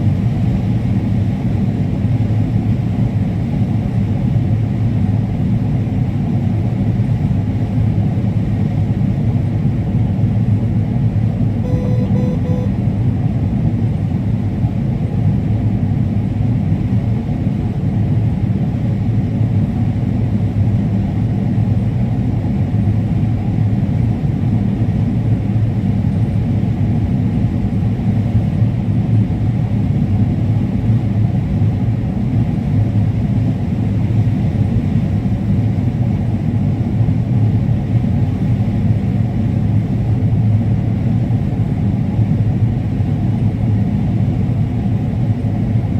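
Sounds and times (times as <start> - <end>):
large engine droning: 9.2 - 19.2.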